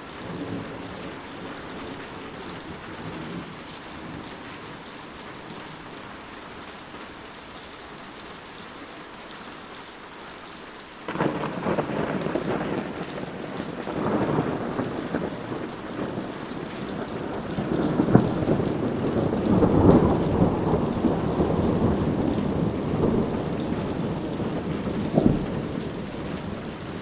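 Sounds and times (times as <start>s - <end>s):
heavy rain: 0.0s - 27.0s
thunder cracks: 11.1s - 27.0s
thunder rumbling: 11.1s - 27.0s.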